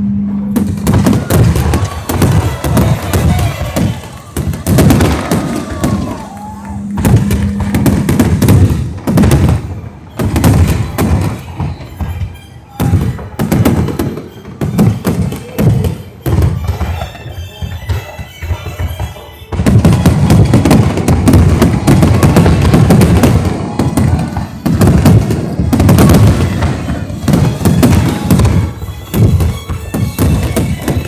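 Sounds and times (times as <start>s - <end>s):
music: 0.0s - 31.0s
fireworks bangs and thumps: 0.5s - 31.0s.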